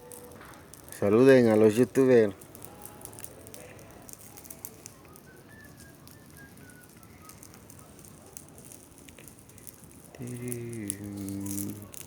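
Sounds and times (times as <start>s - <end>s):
campfire crackling: 0.0s - 12.0s
faint whistle-like notes: 2.6s - 12.0s.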